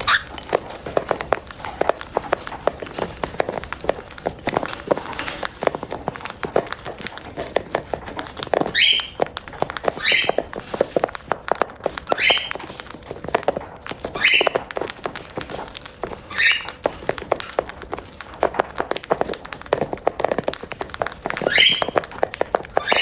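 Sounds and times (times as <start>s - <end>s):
birds pecking and crunching food: 0.0s - 23.0s
cockatiel rising chirp: 8.8s - 9.2s, 10.0s - 10.4s, 12.1s - 12.6s, 14.2s - 14.6s, 16.3s - 16.8s, 21.4s - 22.0s, 22.8s - 23.0s.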